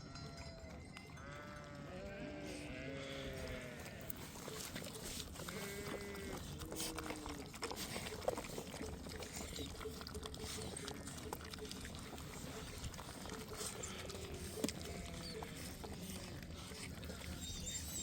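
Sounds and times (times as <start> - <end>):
livestock bleating: 1.2 - 4.3, 5.4 - 7.3, 13.7 - 15.6.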